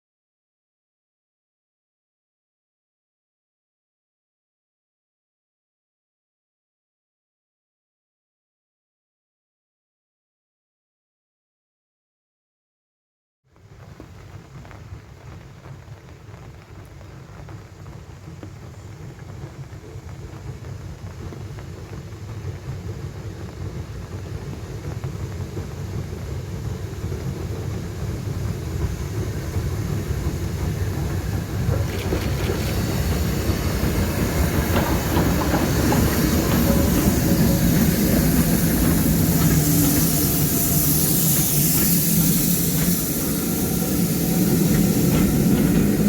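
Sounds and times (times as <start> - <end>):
steam train rumble: 13.8 - 46.0.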